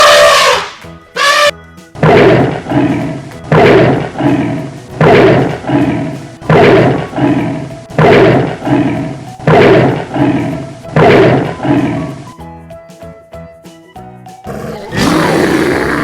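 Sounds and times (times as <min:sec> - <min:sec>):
large animal roaring: 0:02.0 - 0:12.3, 0:14.5 - 0:16.0.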